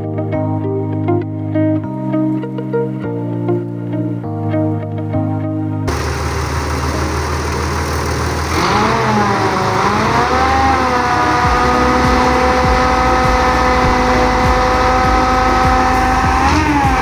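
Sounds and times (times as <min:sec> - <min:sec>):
guitar music: 0:00.0 - 0:17.0
truck engine revving: 0:05.9 - 0:17.0.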